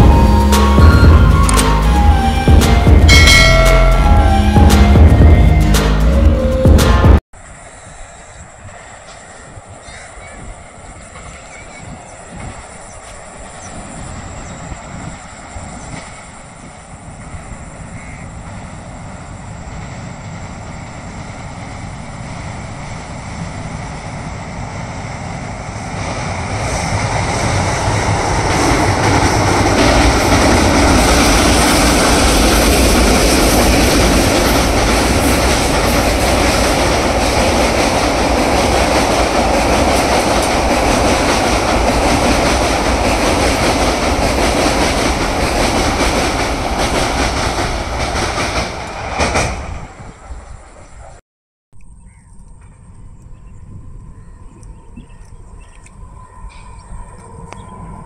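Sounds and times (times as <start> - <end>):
train wheels clattering on bridge: 26.9 - 50.4.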